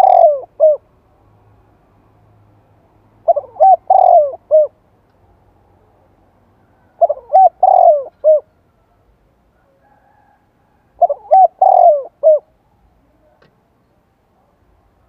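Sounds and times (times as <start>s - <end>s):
dove cooing: 0.0s - 0.9s, 3.2s - 4.8s, 6.8s - 9.0s, 9.6s - 12.6s.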